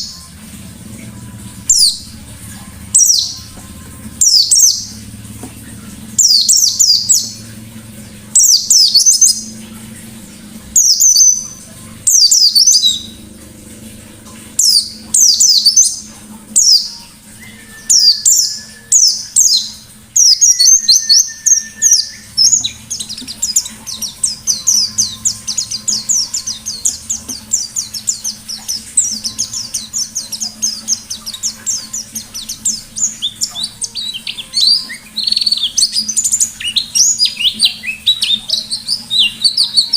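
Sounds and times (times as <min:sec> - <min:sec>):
bird singing chattering phrases: 0:17.9 - 0:39.9.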